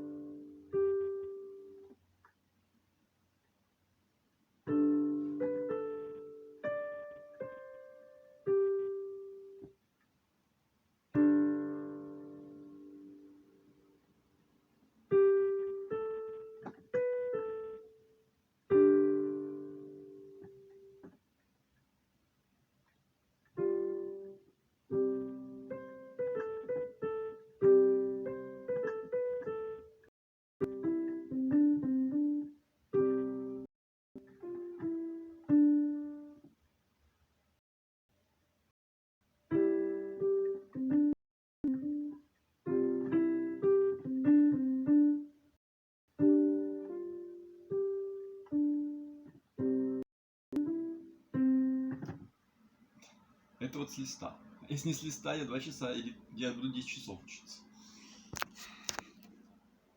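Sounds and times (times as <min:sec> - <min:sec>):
piano played slowly: 0:00.0 - 0:02.0, 0:04.6 - 0:09.7, 0:11.1 - 0:13.8, 0:15.1 - 0:21.1, 0:23.5 - 0:36.5, 0:39.5 - 0:45.5, 0:46.2 - 0:52.2.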